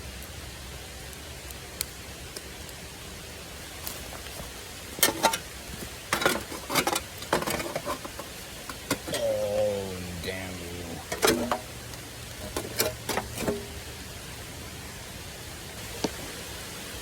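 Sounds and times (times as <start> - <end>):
steady rain: 0.0 - 17.0
sharp clicks and scrapes: 5.0 - 9.2, 11.0 - 13.8.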